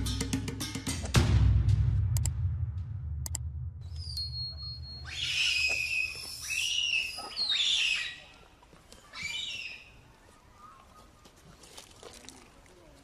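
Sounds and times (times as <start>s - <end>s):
thin steady whistle: 3.8s - 8.1s
shrill animal squeals: 5.0s - 8.3s, 9.1s - 9.9s.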